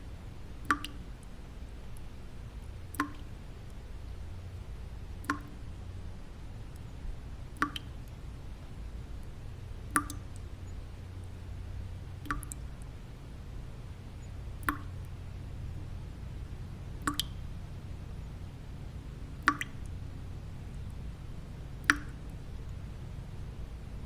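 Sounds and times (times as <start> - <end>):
low rumbling white noise: 0.0 - 24.0
water drops plinking: 0.7 - 1.0, 2.9 - 3.2, 5.2 - 5.6, 7.6 - 7.9, 9.9 - 10.4, 12.2 - 12.6, 14.6 - 15.0, 17.0 - 17.4, 19.4 - 19.9, 21.8 - 22.3.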